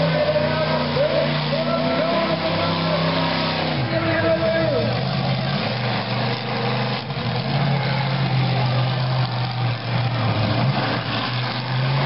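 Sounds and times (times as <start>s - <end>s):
monster truck engine running: 0.0s - 12.0s.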